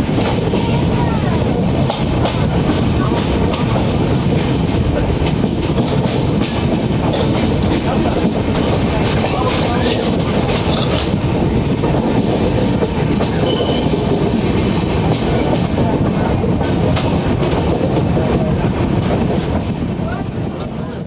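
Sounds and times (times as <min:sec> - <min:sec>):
train wheels rumbling on rails: 0:00.0 - 0:21.0
wheels clacking over rail joints: 0:01.8 - 0:11.2.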